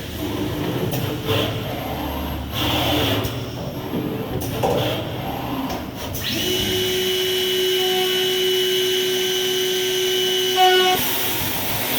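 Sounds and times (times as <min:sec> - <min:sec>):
machine motor whining: 0:06.2 - 0:11.9.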